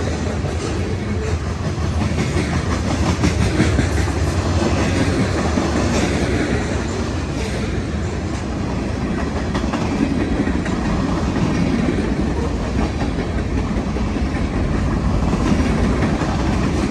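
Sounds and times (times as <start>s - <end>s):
freight train wheels rumbling: 0.0s - 16.9s.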